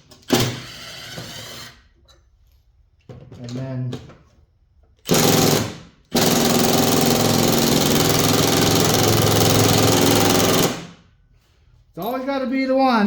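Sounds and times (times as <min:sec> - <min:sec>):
impact wrench hammering: 0:05.1 - 0:10.9.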